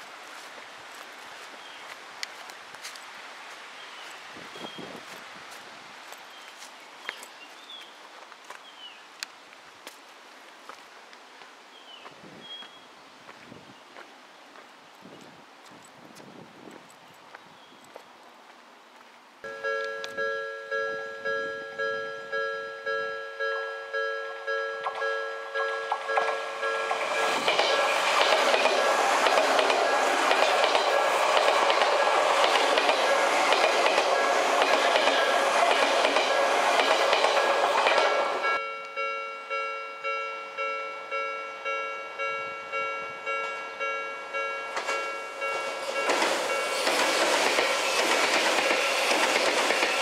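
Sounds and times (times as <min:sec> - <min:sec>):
crossing warning bell ringing: 0:19.4 - 0:27.7, 0:37.2 - 0:47.0
electric train passing: 0:19.5 - 0:50.0.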